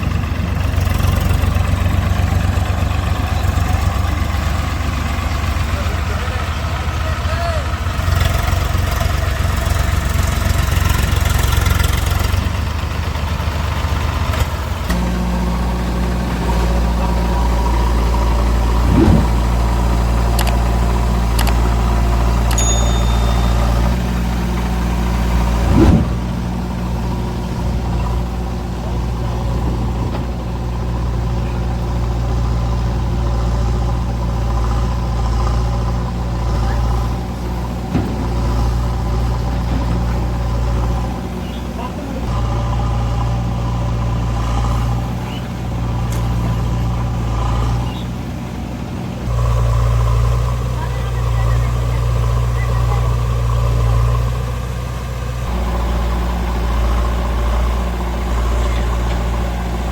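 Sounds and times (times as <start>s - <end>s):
heavy diesel engine running: 0.0s - 59.9s
sharp clicks: 20.4s - 22.6s.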